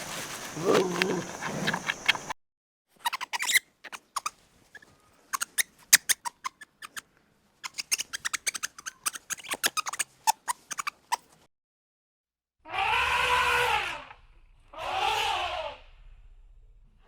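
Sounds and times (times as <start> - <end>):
animal clicking calls: 0.5 - 2.4, 3.0 - 4.3, 5.3 - 7.0, 7.6 - 11.3.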